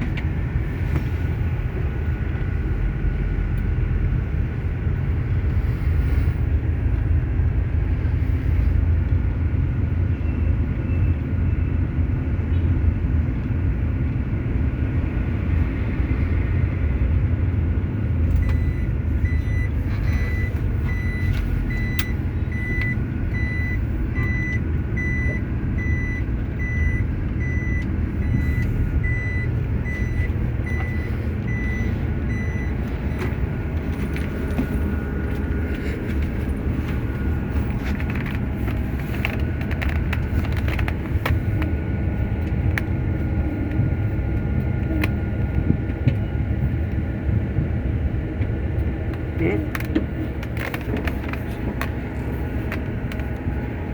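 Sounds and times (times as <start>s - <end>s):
truck diesel engine rumbling: 0.0s - 53.9s
reversing alarm beeping: 18.4s - 35.0s.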